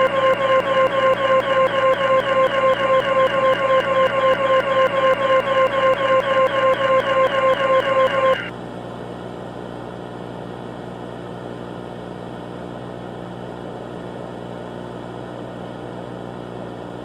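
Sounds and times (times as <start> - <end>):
pulsing electronic tone: 0.0 - 8.5.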